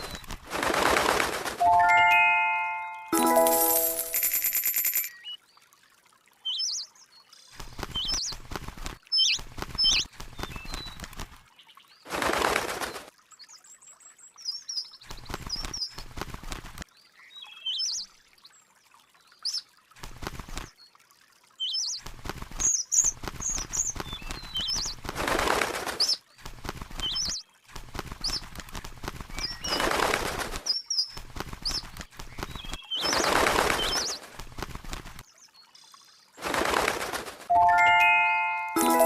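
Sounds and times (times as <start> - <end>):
wings flapping: 0.0 - 2.2, 7.6 - 11.5, 12.1 - 13.1, 15.0 - 16.8, 20.0 - 20.7, 22.0 - 35.2, 36.4 - 37.6
birds chirping: 22.6 - 25.0, 29.3 - 30.0, 30.6 - 34.3.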